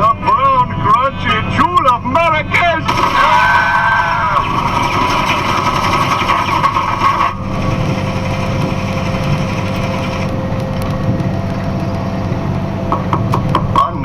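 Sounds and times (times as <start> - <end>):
truck engine and road noise: 0.0 - 14.0.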